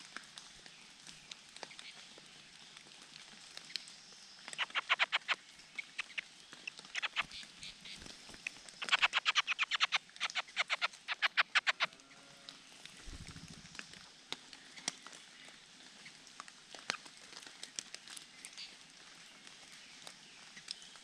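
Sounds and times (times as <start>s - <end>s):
birds giving sharp call notes: 4.4s - 11.9s.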